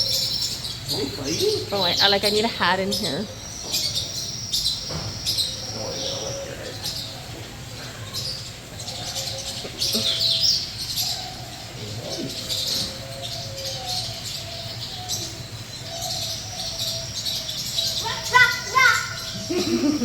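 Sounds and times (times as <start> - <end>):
birds chirping and calling: 0.0 - 20.0
steady low hum: 0.0 - 20.0.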